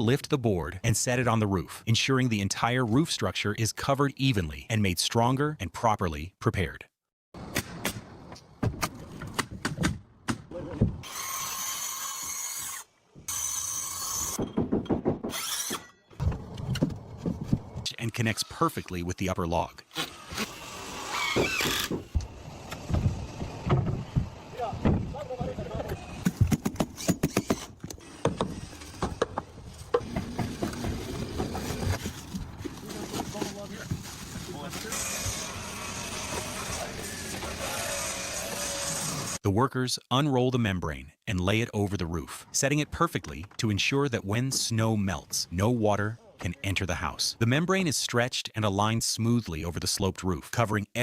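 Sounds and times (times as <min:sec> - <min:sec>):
power tool running: 0:34.8 - 0:39.4.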